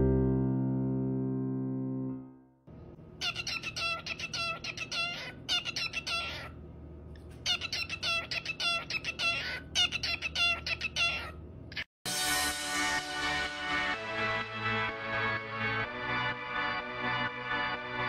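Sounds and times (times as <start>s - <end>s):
cockatiel chirping: 3.2s - 6.5s, 7.4s - 11.4s.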